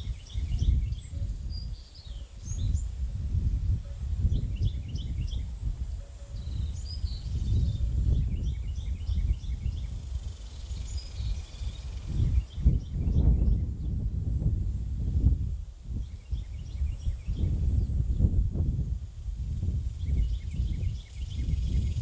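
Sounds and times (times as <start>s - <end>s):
small birds chirping: 0.0s - 3.0s, 4.3s - 14.0s, 15.9s - 18.1s, 20.0s - 22.0s.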